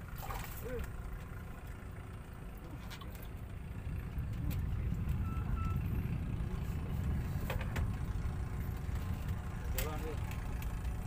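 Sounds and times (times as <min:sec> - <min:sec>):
vehicle rumble: 0:00.0 - 0:11.0
faint short beep: 0:05.1 - 0:05.9.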